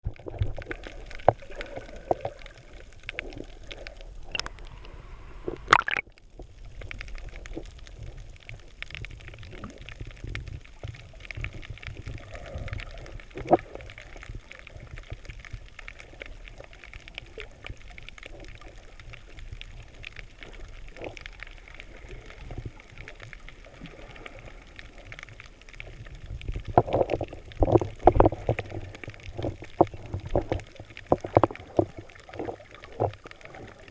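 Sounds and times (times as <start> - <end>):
small clicks and crackles: 0.0 - 33.9
water gurgling and sloshing: 0.0 - 33.9.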